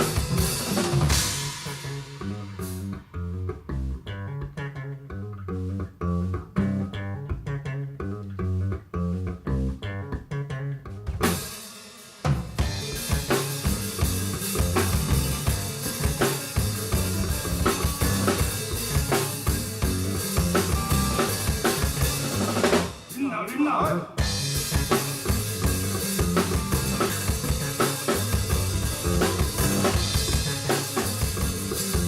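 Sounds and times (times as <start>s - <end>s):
live band playing: 0.0s - 3.1s, 11.1s - 32.0s
bass guitar riff: 0.0s - 11.6s, 12.4s - 32.0s
cymbal crash: 1.1s - 2.6s.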